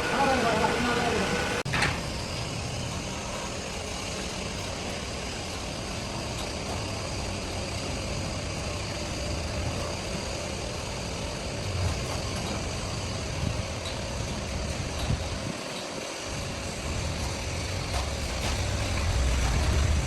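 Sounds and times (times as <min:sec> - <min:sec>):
heavy machinery engine running: 0:00.0 - 0:20.0.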